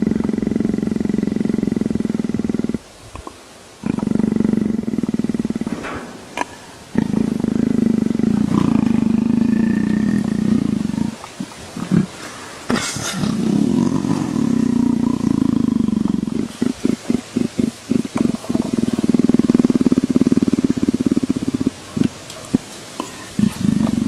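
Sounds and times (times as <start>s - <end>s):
leopard purring: 0.0s - 24.0s.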